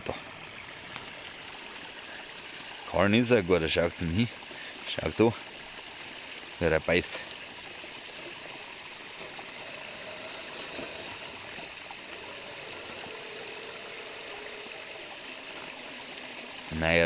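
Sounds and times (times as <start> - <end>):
water flowing over rocks: 0.0 - 17.0
electric motor whine: 9.2 - 17.0.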